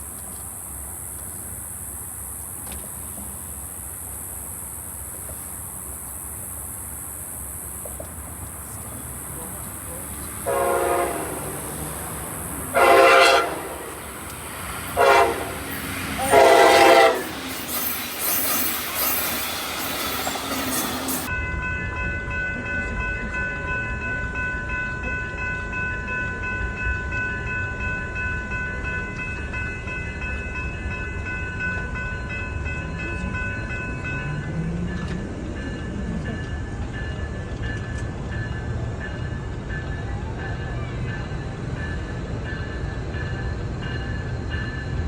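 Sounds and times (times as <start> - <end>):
train rumbling by: 0.0 - 45.0
train horn blasts: 10.4 - 12.0, 12.7 - 14.2, 14.8 - 17.7.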